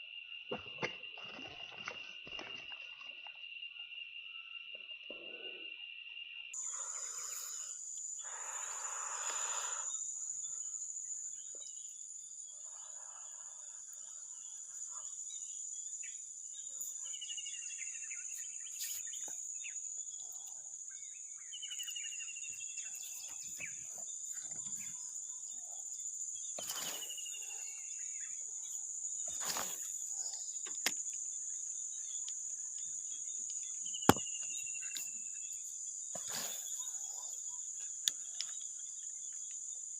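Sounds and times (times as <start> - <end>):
crickets droning: 0.0 - 39.9
rustle: 29.2 - 30.0.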